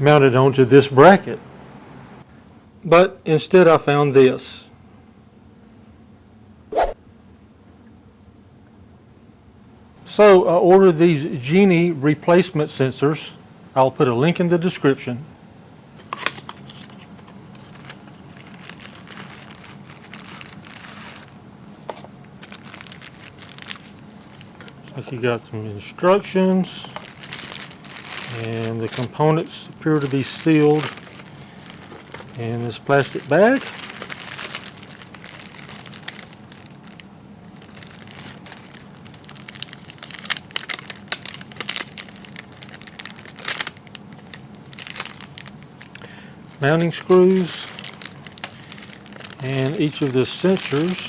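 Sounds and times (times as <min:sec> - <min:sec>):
steady low hum: 0:00.0 - 0:51.0
packaging rustling and crinkling: 0:16.0 - 0:25.2, 0:26.1 - 0:51.0
small clicks and crackles: 0:33.2 - 0:46.1, 0:47.1 - 0:51.0.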